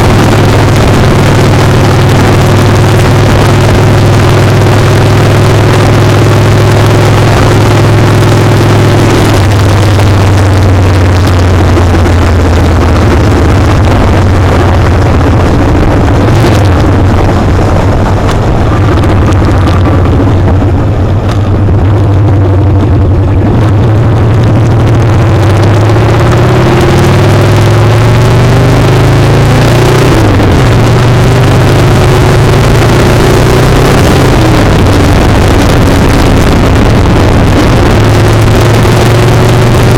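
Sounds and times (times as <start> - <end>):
motorcycle engine running: 0.0 - 39.9
wind rushing: 0.0 - 39.9.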